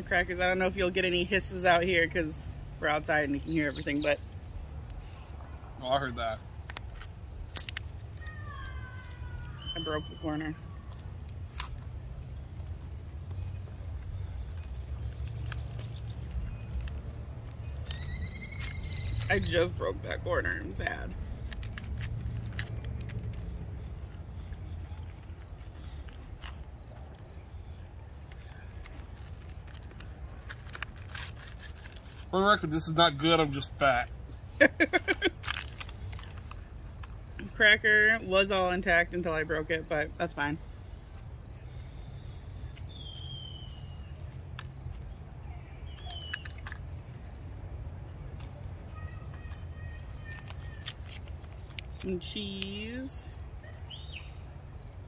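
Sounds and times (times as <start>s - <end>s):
insects chirring: 0.0s - 55.0s
small clicks and crackles: 6.6s - 9.7s, 10.8s - 18.0s, 21.1s - 32.3s, 34.9s - 37.5s, 48.3s - 52.7s
falling bird whistles: 17.9s - 19.3s, 42.9s - 44.0s.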